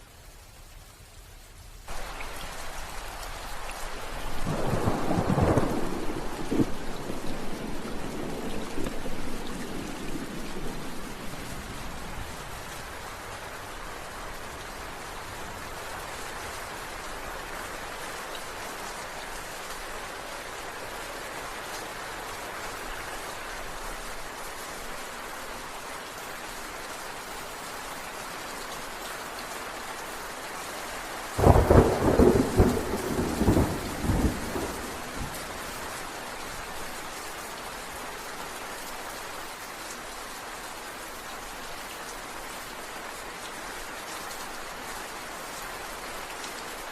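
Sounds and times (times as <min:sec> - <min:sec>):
steady rain falling: 0:00.0 - 0:46.9
thunder clap rumbling: 0:04.3 - 0:11.7, 0:31.4 - 0:35.8.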